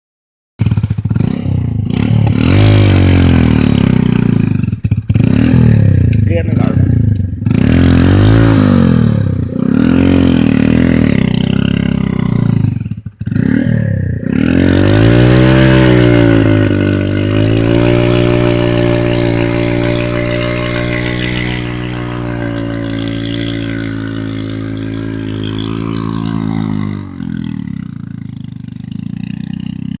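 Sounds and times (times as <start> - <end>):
small engine revving: 0.7 - 30.0
engine running and idling: 16.4 - 30.0.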